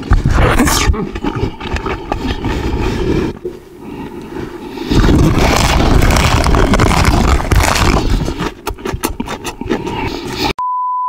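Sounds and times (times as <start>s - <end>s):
deep rumbling noise: 0.0s - 3.4s, 4.8s - 8.4s
crunching cabbage leaves: 3.8s - 10.5s.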